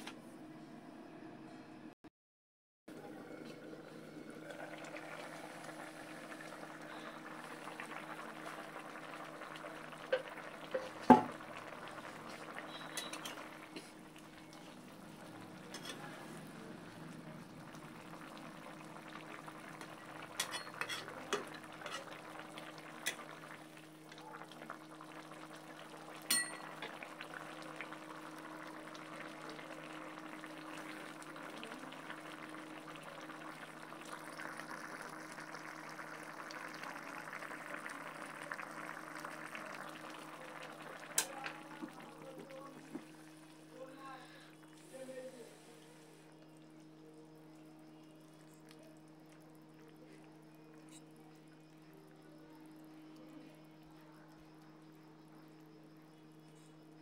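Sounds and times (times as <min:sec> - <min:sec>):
low hum and hiss: 0:02.9 - 0:57.0
utensils clinking against cookware: 0:12.9 - 0:13.4, 0:15.7 - 0:16.0, 0:20.4 - 0:22.2, 0:26.3 - 0:26.9.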